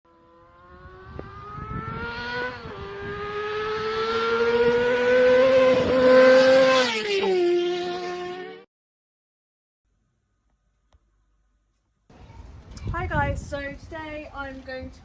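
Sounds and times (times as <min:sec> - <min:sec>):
vehicle engine revving: 0:00.1 - 0:08.7.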